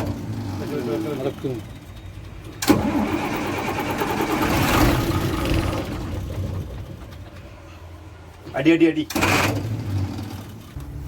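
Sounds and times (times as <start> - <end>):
diesel engine cold starting: 0.0 - 11.0.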